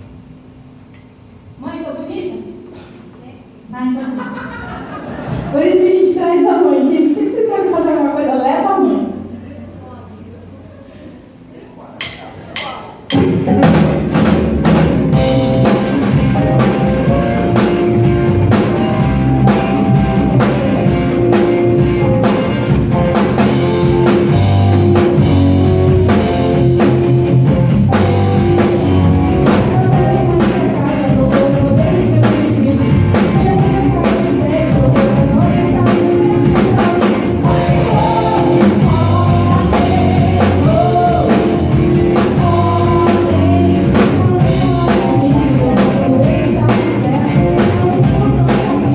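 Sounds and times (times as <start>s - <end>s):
drum kit beat: 12.0s - 48.9s
rock band playing: 12.0s - 48.9s
person singing: 29.4s - 48.9s.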